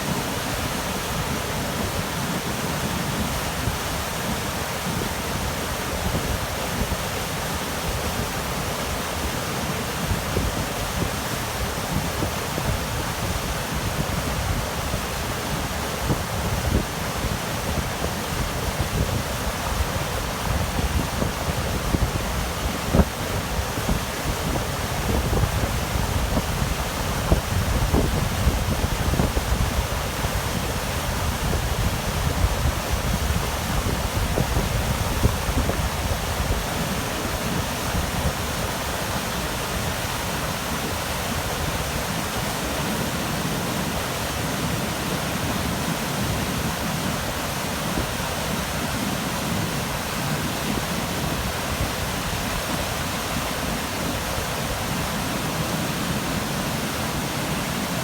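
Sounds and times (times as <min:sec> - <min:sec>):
rushing outdoor noise: 0:00.0 - 0:58.0
wind buffeting microphone: 0:10.0 - 0:42.4.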